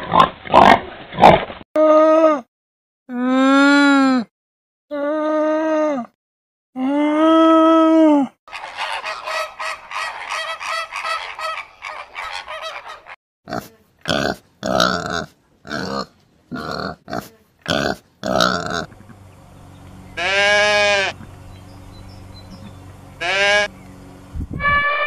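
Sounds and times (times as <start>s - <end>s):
flamingos honking: 8.5s - 13.2s, 18.9s - 23.8s
pigs grunting and squealing: 8.5s - 19.2s, 20.2s - 21.3s.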